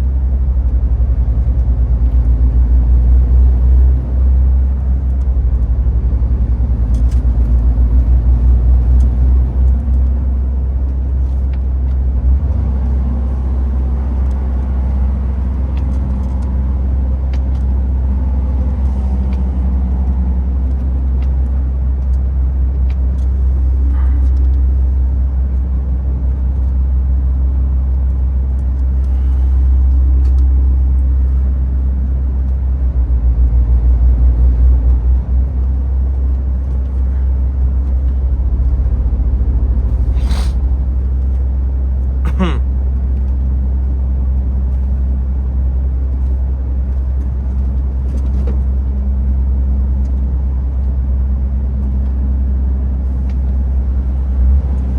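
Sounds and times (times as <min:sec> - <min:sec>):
truck diesel engine droning: 0:00.0 - 0:42.9.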